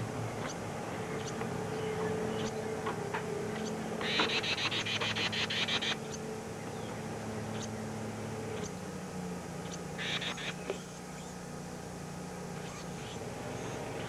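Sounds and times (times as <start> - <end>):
low electrical hum: 0.0 - 14.0
nestling birds begging chatter: 0.2 - 8.8, 9.6 - 11.5
bird chips: 3.6 - 6.2.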